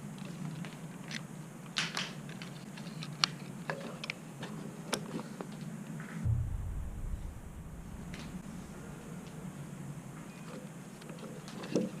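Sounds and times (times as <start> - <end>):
low hum: 6.2 - 10.2.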